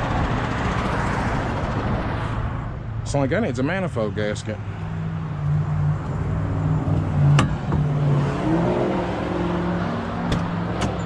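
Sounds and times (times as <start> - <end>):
man speaking: 3.1 - 4.7.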